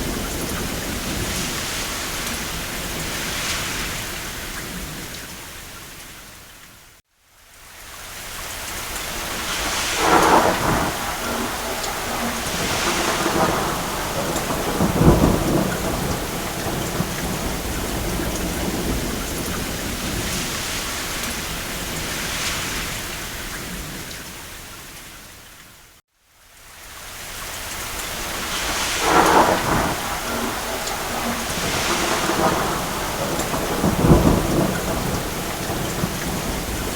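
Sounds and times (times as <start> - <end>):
steady rain: 0.0 - 36.9
distant thunder rolling: 9.2 - 24.2, 28.1 - 36.9.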